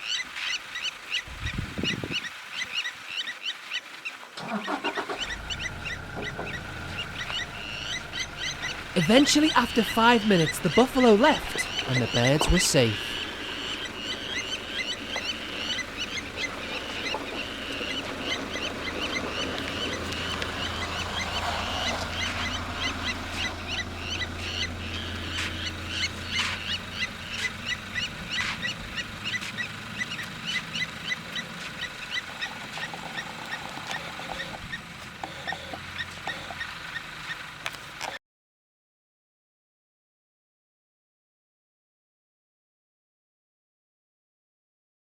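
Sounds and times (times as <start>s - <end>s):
lapwings giving metallic alarm calls: 0.0s - 37.5s
low steady hum: 5.3s - 36.7s.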